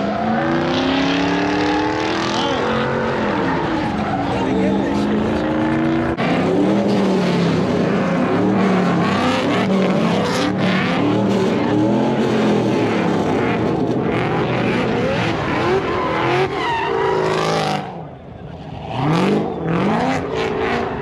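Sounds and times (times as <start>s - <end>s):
truck engines revving hard: 0.0s - 21.0s.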